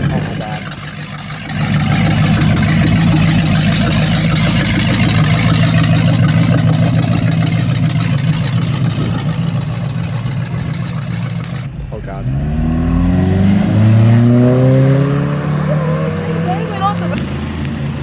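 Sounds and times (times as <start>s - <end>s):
engine at high revs: 0.0s - 18.0s.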